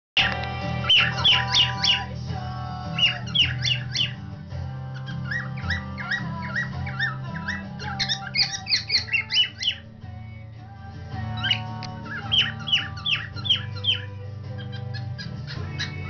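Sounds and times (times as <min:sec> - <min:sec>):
cockatiel whistling: 0:00.2 - 0:02.2, 0:02.9 - 0:04.2, 0:05.0 - 0:09.9, 0:11.4 - 0:16.0
music with guitar: 0:00.2 - 0:16.0.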